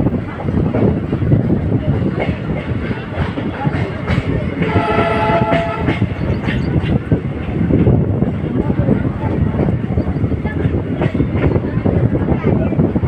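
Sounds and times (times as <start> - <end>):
train wheels rumbling on rails: 0.0 - 13.0
train horn: 4.6 - 6.1.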